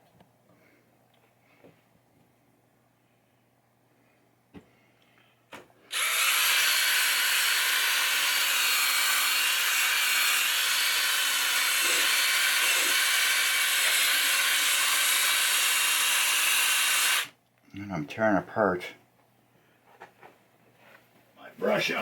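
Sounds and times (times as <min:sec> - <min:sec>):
power drill brush scrubbing wood: 0:05.9 - 0:17.3.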